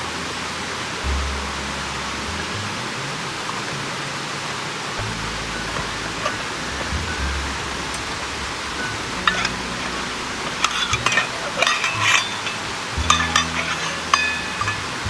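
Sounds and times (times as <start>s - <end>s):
steady background noise: 0.0s - 15.0s
high metallic ringing: 5.0s - 15.0s
cookware clinking and scraping: 5.5s - 15.0s.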